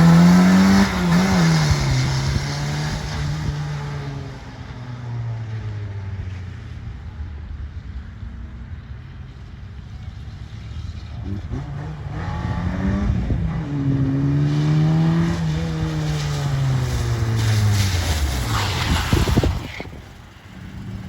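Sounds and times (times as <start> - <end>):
small petrol engine revving: 0.0 - 4.2, 11.3 - 21.0.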